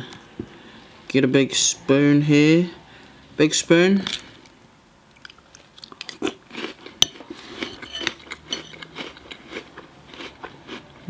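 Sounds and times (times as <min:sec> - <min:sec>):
chewing with crunches: 0:05.1 - 0:11.0.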